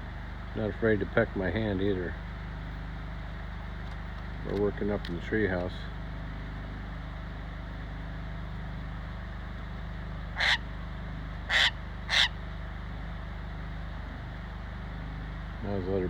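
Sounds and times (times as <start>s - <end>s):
steady low hum: 0.0s - 16.0s
short bird calls: 10.3s - 10.8s, 11.4s - 12.5s.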